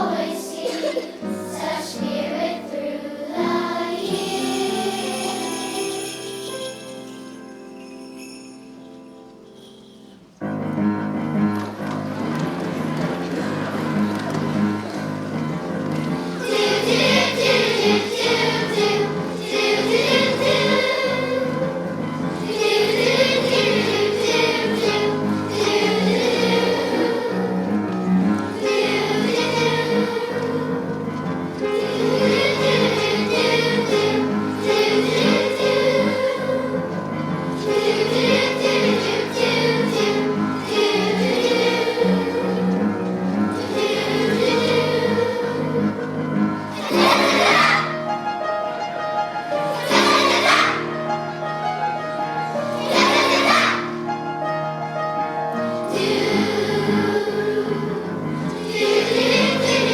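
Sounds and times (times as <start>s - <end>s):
children's choir singing: 0.0s - 8.1s, 9.3s - 59.9s
bright high shimmer: 4.1s - 10.2s.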